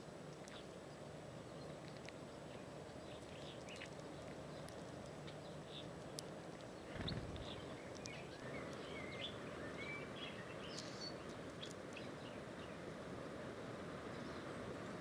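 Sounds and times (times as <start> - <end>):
songbirds chirping and whistling: 6.7 - 12.8.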